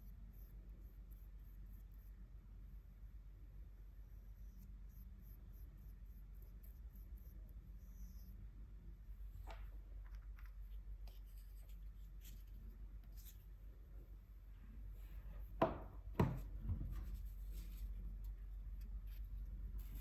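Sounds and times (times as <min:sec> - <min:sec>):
scratching strokes on paper: 0:04.0 - 0:08.4, 0:10.7 - 0:13.9, 0:16.9 - 0:20.0.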